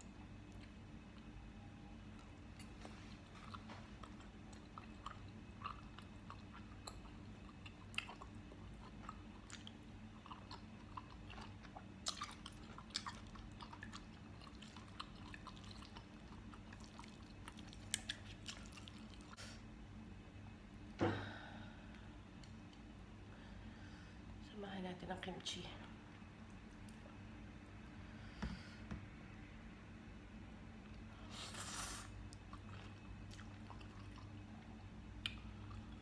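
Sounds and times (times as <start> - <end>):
person chewing food: 0.0 - 19.6, 31.6 - 36.0.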